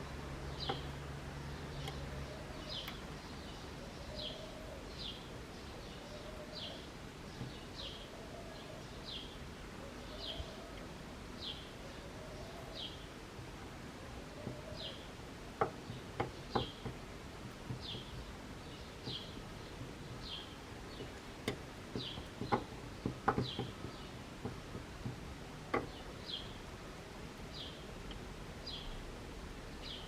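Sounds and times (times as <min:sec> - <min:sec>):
sharp clicks and light knocks: 0:15.6 - 0:18.2, 0:20.9 - 0:26.0.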